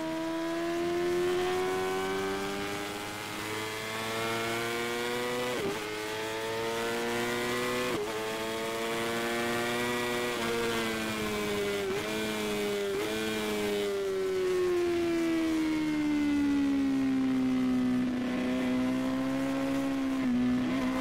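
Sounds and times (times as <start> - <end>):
motorcycle engine shifting gears: 17.4 - 21.0.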